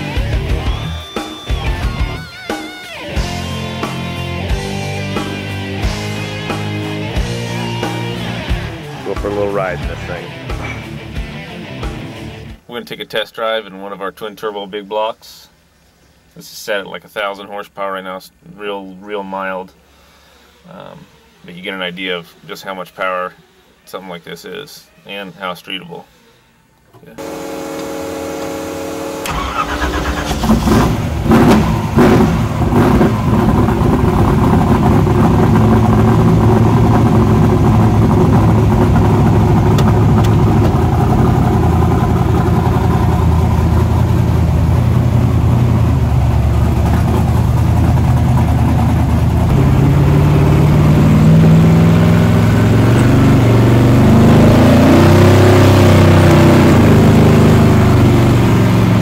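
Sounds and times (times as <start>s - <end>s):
car engine revving: 0.0s - 12.6s, 27.0s - 59.0s.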